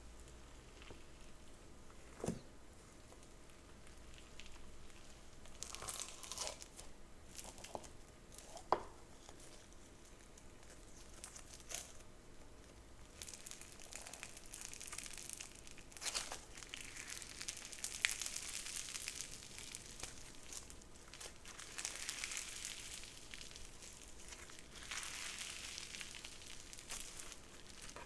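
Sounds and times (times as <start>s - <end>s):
crunchy slime crackling and popping: 3.1s - 28.0s.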